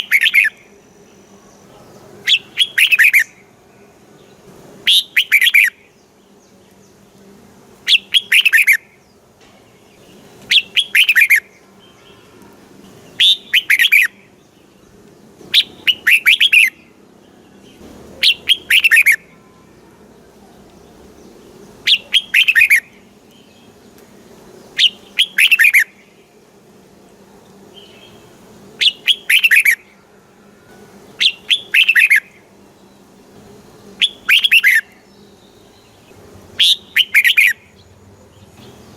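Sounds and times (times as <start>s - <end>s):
bird singing whistled notes: 0.0s - 1.2s, 2.2s - 3.4s, 4.9s - 6.0s, 7.9s - 9.0s, 10.0s - 12.3s, 13.1s - 14.6s, 15.5s - 17.0s, 17.6s - 19.4s, 21.8s - 23.8s, 24.7s - 26.0s, 28.8s - 29.9s, 31.2s - 33.0s, 34.0s - 38.9s.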